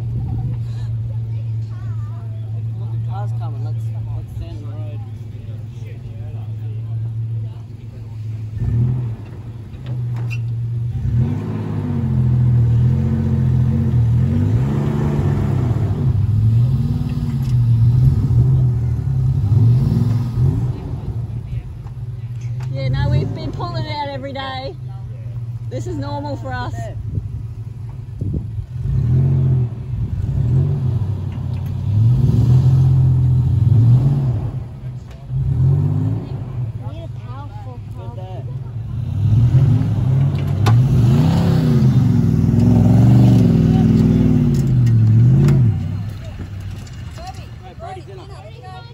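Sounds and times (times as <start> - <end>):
engines revving under load: 0.0 - 48.9.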